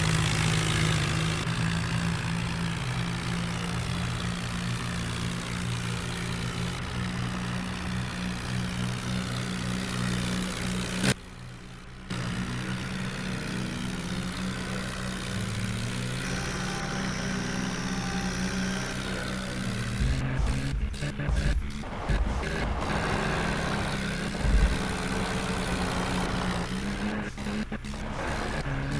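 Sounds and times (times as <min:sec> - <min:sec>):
heavy machinery diesel engine: 0:00.0 - 0:28.9.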